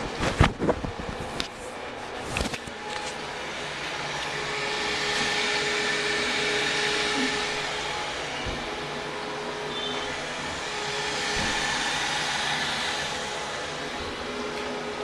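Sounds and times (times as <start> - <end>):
toilet flushing: 3.8 - 15.0.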